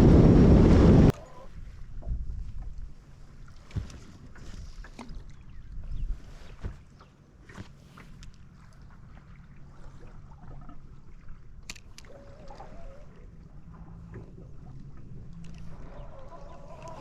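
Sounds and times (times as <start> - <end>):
low hum: 0.0 - 2.0
water noise: 0.0 - 17.0.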